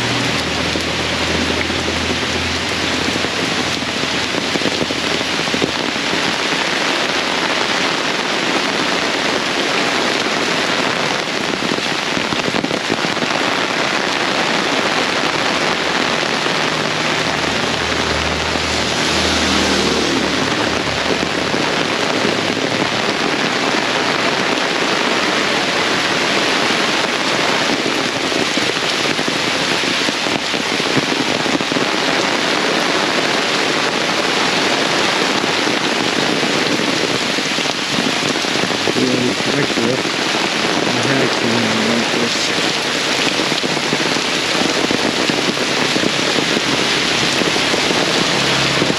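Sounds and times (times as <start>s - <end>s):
heavy rain pouring: 0.0s - 48.9s.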